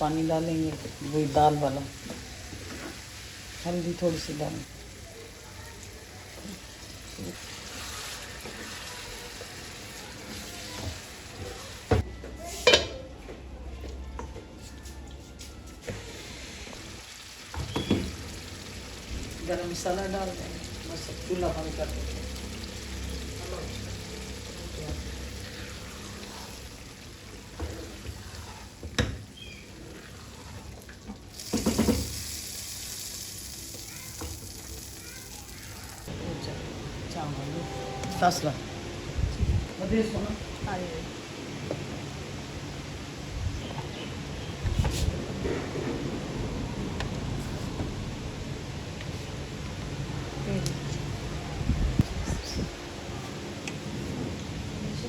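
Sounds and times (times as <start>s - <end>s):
pot sizzling and bubbling: 0.0s - 12.7s, 15.8s - 36.2s.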